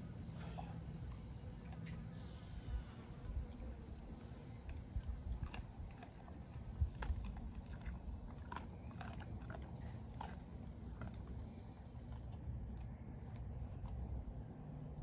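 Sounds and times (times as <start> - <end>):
dog crunching food: 3.5 - 15.0.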